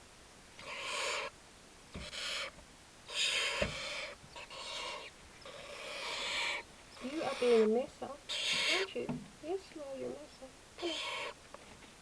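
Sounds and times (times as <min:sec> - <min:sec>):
baby owls rasping calls: 0:00.6 - 0:09.2, 0:10.0 - 0:11.4.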